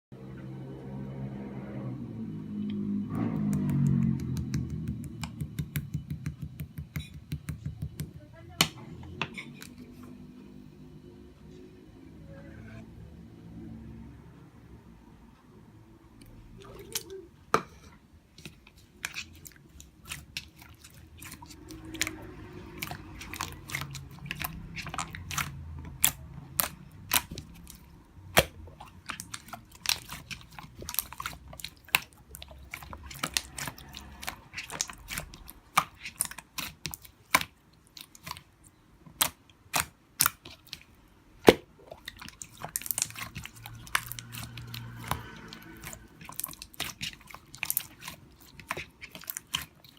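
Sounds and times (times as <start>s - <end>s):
slime clicking and popping: 3.4s - 8.0s, 22.8s - 38.5s, 39.1s - 40.8s.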